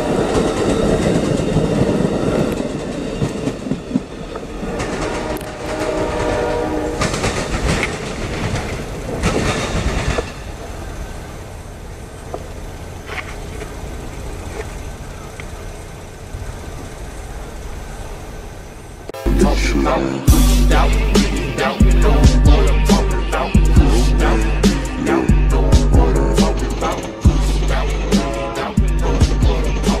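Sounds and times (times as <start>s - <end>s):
train wheels clacking over rails: 0.0s - 11.3s
train horn: 4.6s - 7.4s, 19.2s - 25.3s, 27.8s - 29.6s.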